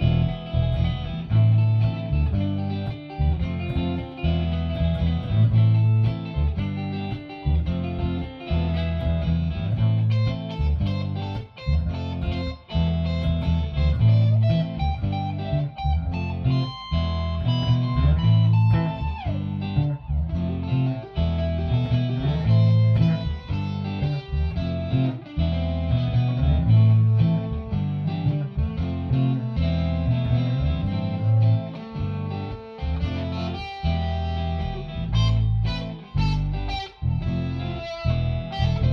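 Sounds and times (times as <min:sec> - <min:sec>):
electric guitar blues shuffle: 0:00.0 - 0:38.9.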